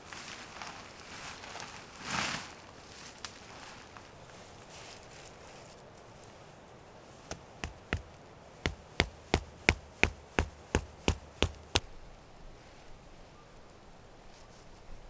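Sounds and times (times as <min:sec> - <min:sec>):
tool striking hard object: 0:07.3 - 0:11.8.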